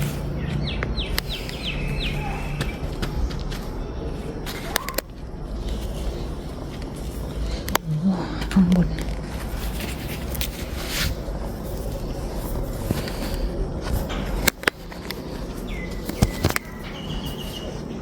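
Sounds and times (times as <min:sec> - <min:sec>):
rain garden ambience: 0:00.0 - 0:18.0
sharp clicks and snaps: 0:04.5 - 0:05.2, 0:14.0 - 0:15.3, 0:16.0 - 0:17.0.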